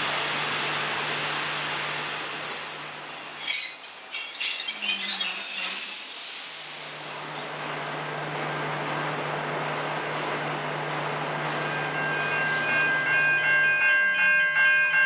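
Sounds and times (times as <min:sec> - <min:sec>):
train rolling with low hum: 0:00.0 - 0:15.0
train wheel squeal: 0:03.1 - 0:07.8.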